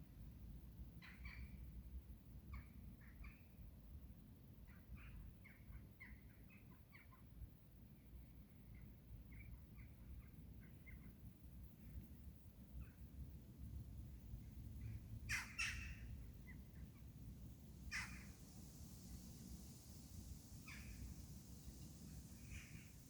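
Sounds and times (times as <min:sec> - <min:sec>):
small birds chirping: 0:14.4 - 0:23.0.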